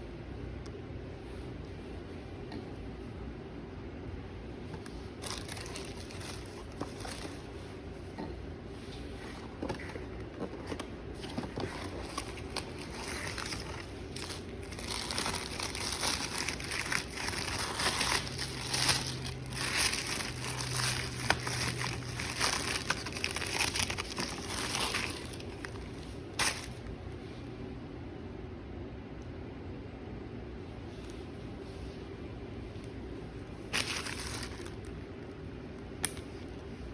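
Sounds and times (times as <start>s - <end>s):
packaging wrap crinkling: 4.9s - 7.6s, 9.3s - 26.9s, 33.6s - 35.0s.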